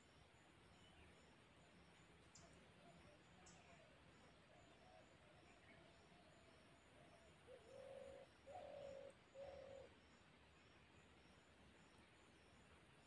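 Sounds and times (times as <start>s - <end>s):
bird cooing: 7.5s - 9.9s
faint wavering bird call: 7.5s - 9.9s.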